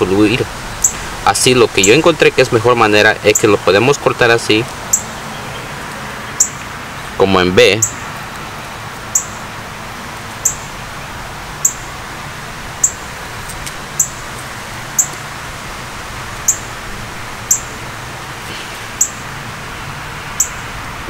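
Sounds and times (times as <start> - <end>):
steady background hiss: 0.0 - 21.0
bird chirping: 0.8 - 1.1, 4.8 - 8.5, 9.1 - 9.5, 10.3 - 11.9, 12.8 - 15.2, 16.3 - 16.8, 17.4 - 20.8.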